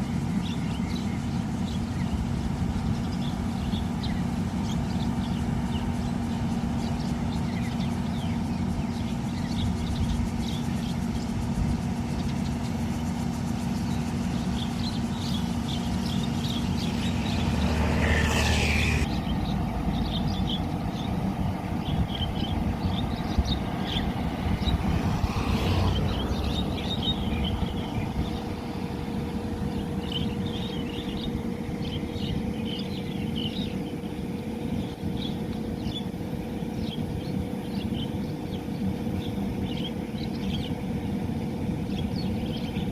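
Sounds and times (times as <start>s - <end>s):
low rumble and hum: 0.0s - 42.9s
bird chirps: 12.1s - 24.8s.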